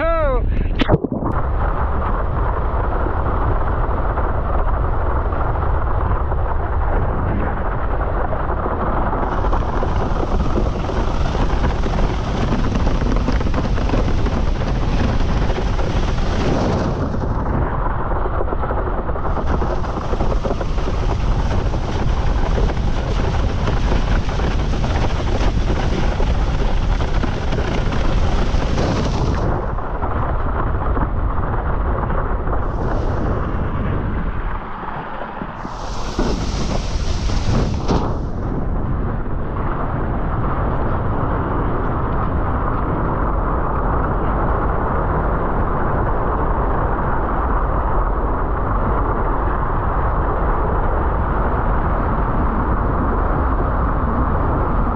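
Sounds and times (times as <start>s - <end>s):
strong wind buffeting microphone: 0.0s - 54.9s
water rushing under board: 0.6s - 40.6s.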